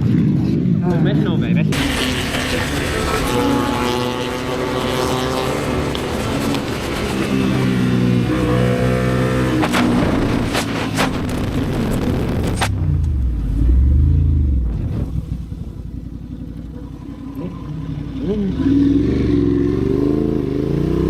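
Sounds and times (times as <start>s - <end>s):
motorcycle engine revving: 1.6s - 21.0s.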